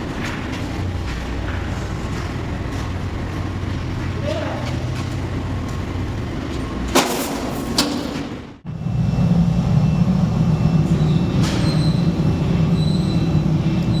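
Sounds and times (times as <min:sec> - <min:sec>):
factory machinery humming: 0:00.0 - 0:14.0.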